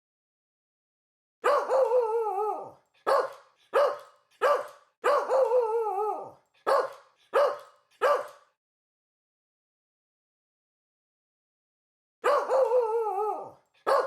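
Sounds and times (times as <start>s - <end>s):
dog howling call: 1.4s - 3.3s, 12.2s - 14.0s
dog barking: 1.4s - 5.6s, 6.2s - 8.6s, 12.2s - 14.0s.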